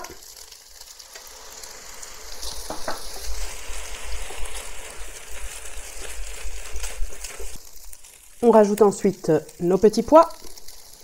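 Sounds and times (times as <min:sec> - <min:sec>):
spatula scraping a wok: 0:00.0 - 0:08.4
rice sizzling in a wok: 0:00.0 - 0:11.0.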